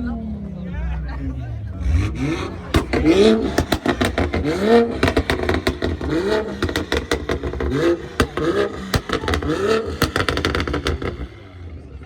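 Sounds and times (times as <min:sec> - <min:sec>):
car engine revving: 0:01.0 - 0:12.0
exhaust pops and cracks: 0:02.1 - 0:11.5.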